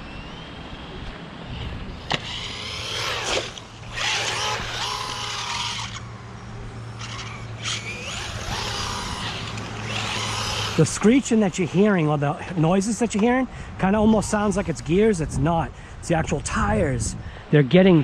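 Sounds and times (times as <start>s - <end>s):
rc car motor whining: 0.0s - 11.9s.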